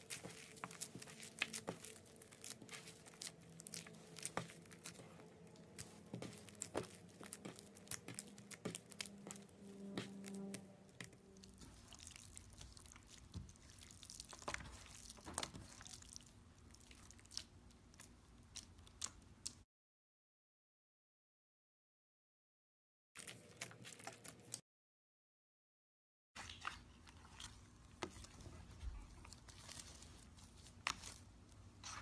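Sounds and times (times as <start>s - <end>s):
slime squished by hand: 0.0s - 19.6s.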